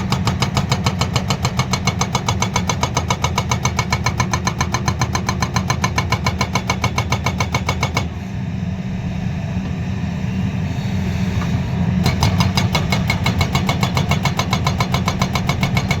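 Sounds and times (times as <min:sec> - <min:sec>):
hydraulic breaker hammering rock: 0:00.0 - 0:08.2, 0:12.0 - 0:16.0
excavator diesel engine: 0:00.0 - 0:16.0.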